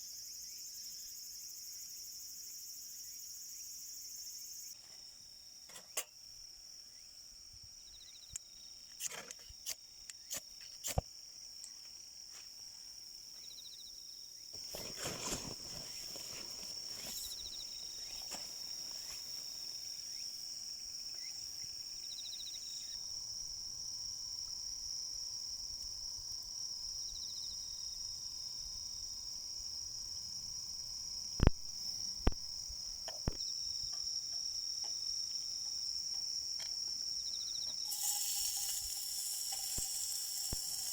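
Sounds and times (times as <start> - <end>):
crickets trilling: 0.0 - 40.9
soft insect chirp: 0.0 - 40.9
rustling noise: 14.6 - 19.6.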